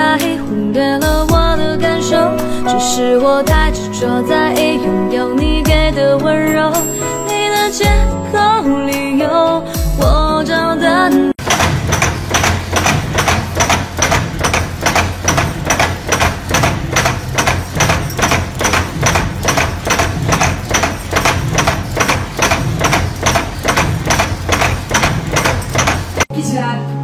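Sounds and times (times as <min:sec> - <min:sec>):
motor and flywheel hum: 0:11.4 - 0:26.3
punch press stamping metal: 0:11.4 - 0:26.3.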